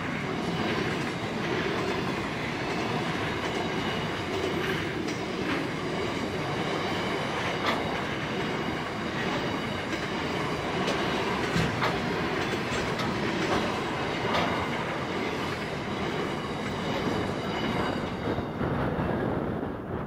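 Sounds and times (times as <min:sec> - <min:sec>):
wheels clacking over rail joints: 0:00.0 - 0:19.2
freight train rumble: 0:00.0 - 0:20.0.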